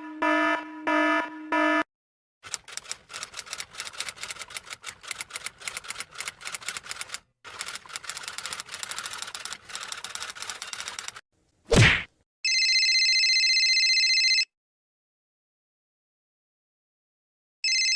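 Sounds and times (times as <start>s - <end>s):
loud typewriter clack: 2.4s - 11.2s.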